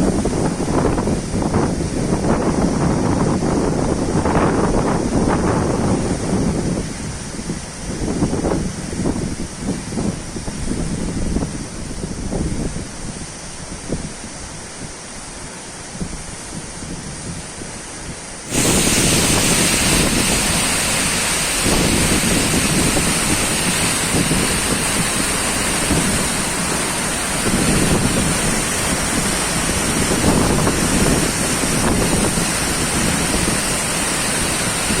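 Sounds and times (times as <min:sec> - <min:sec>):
waterfall rushing: 0:18.5 - 0:35.0.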